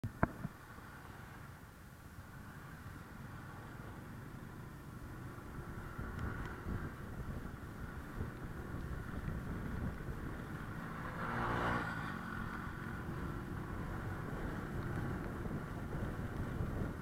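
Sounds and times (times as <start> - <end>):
scooter engine running: 3.4 - 17.0
louder passing engine: 5.1 - 16.7
wind on microphone: 5.1 - 17.0.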